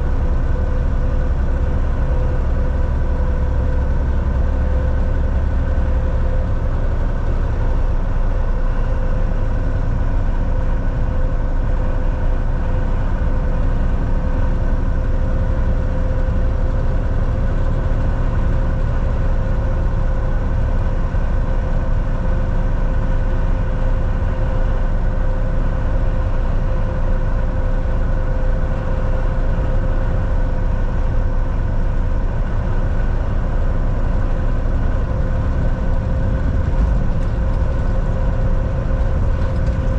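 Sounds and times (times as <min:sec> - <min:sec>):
truck engine and road rumble: 0:00.0 - 0:39.9
steady whine: 0:23.2 - 0:39.9.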